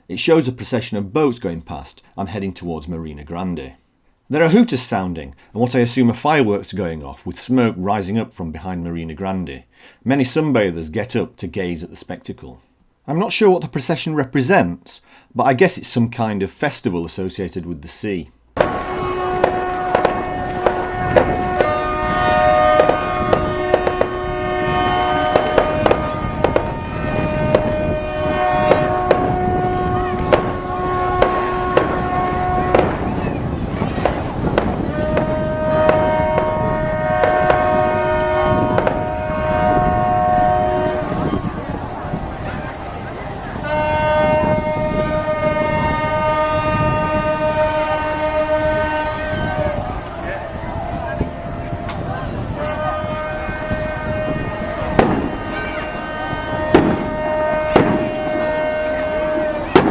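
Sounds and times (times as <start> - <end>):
sharp firecracker bangs: 18.6 - 41.9, 52.6 - 59.9
boat hooters: 18.6 - 59.9.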